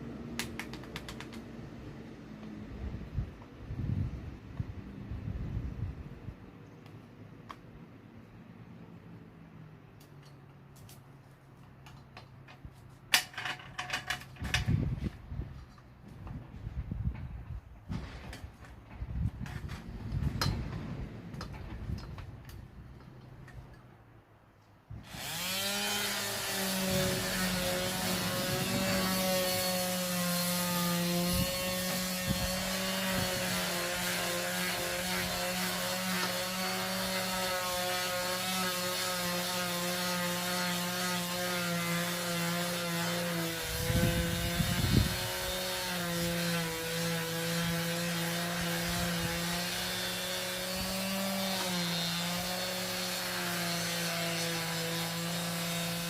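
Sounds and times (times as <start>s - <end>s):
power sander running on wood: 25.1s - 56.0s.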